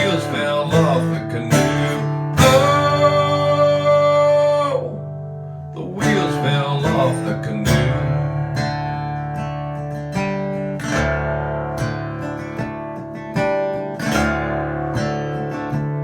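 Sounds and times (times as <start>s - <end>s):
steady bass: 0.0s - 9.5s
acoustic guitar strumming: 0.0s - 16.0s.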